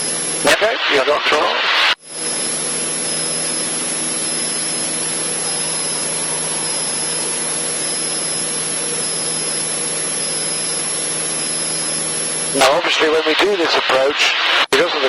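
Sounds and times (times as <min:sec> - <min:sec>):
airplane engine droning: 0:02.1 - 0:13.4.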